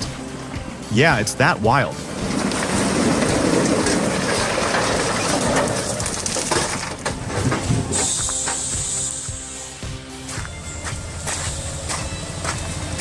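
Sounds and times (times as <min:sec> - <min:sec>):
heavy machinery clattering: 0:02.0 - 0:08.9.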